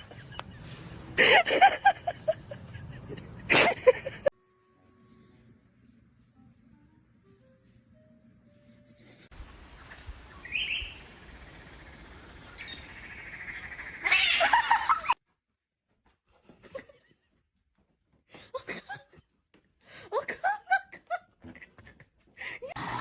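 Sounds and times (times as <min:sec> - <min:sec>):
animal chirps and cry: 0:13.6 - 0:14.7.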